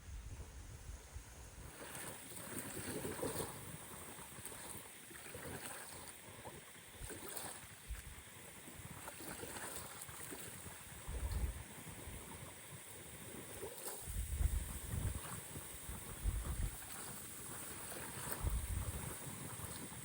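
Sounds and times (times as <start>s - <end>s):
lake water lapping against shore: 1.6s - 20.0s
wind buffeting microphone: 11.0s - 12.5s, 14.0s - 20.0s.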